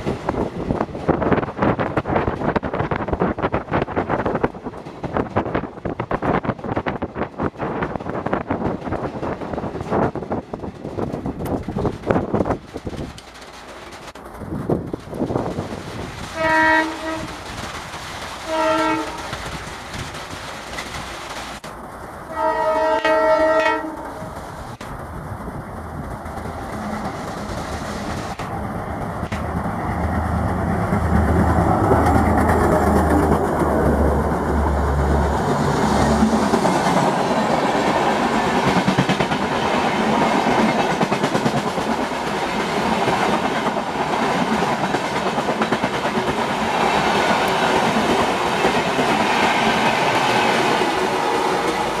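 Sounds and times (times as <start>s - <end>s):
train wheels clattering over rail joints: 0.0s - 21.8s, 35.5s - 52.0s
diesel locomotive engine drone: 20.6s - 41.0s.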